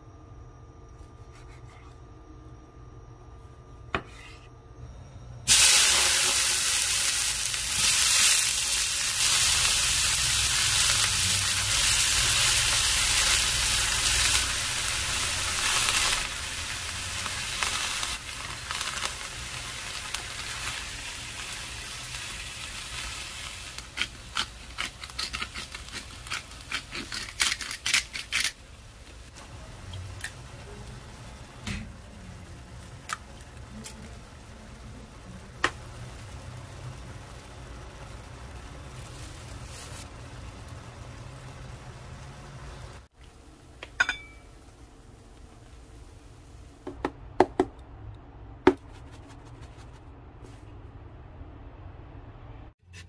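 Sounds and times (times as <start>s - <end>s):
vegetables sizzling in frying pan: 5.5s - 24.7s, 28.8s - 43.8s.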